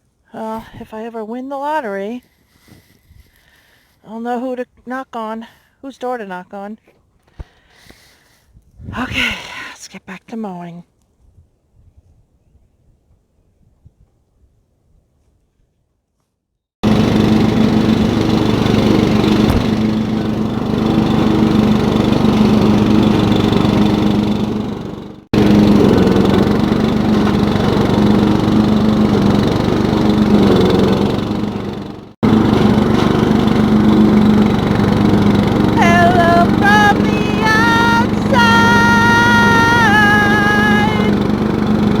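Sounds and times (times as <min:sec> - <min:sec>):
lawn tractor engine running: 0:16.8 - 0:42.0.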